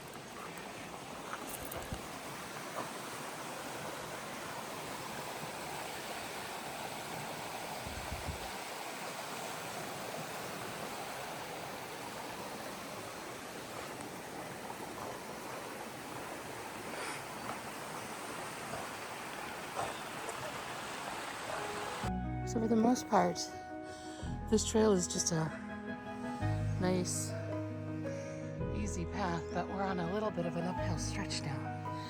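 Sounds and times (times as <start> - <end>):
creek water flowing: 0.0 - 22.1.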